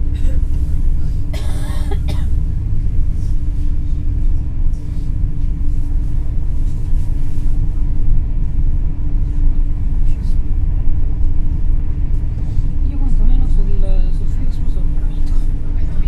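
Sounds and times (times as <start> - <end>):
constant hum: 0.0 - 16.0
train cabin rumble: 0.0 - 16.0.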